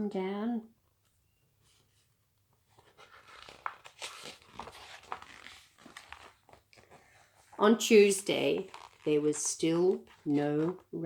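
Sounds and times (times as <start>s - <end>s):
paper page rustling: 2.6s - 10.9s.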